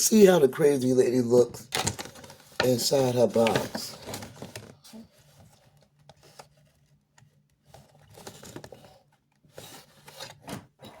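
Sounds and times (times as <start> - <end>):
toy and cardboard box clicks and rustles: 7.6 - 10.5.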